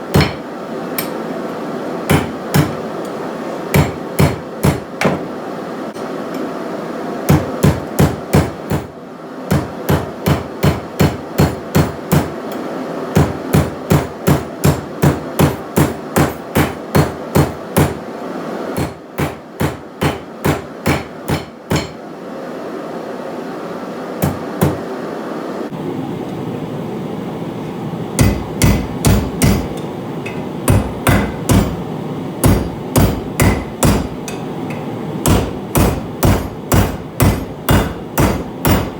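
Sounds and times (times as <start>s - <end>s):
hammer striking steel on anvil: 0.0s - 1.2s, 2.1s - 5.3s, 9.5s - 18.0s, 18.8s - 22.0s, 28.2s - 38.9s.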